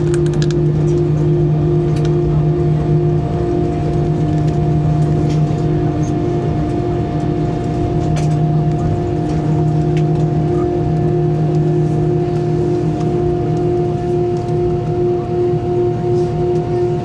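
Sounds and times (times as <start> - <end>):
faint clicks and rattles: 0.0 - 1.1
aircraft engines rumbling: 0.0 - 17.0.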